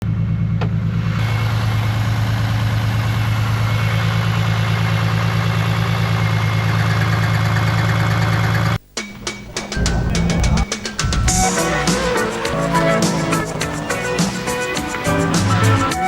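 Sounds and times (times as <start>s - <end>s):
car engine idling: 8.8s - 16.0s.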